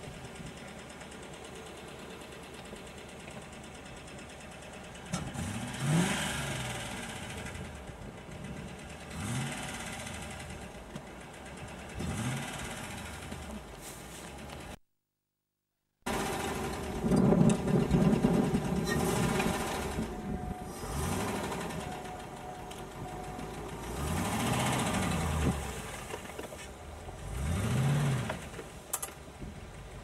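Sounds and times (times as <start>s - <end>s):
car engine revving: 5.1s - 13.6s, 16.1s - 28.8s.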